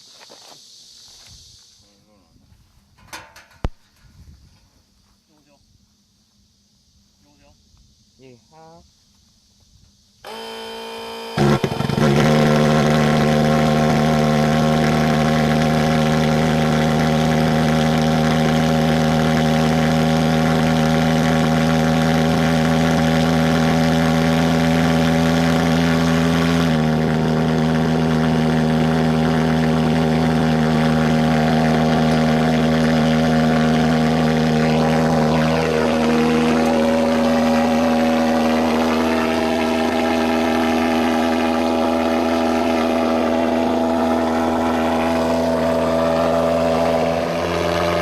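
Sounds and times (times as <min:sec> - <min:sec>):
fogging machine buzzing drone: 0:10.2 - 0:48.0.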